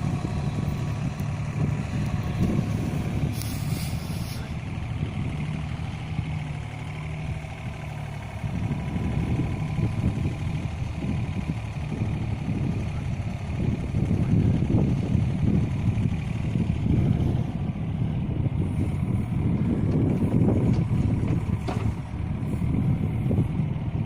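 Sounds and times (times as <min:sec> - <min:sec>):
excavator diesel engine running: 0:00.0 - 0:24.0
short hiss: 0:03.3 - 0:04.5.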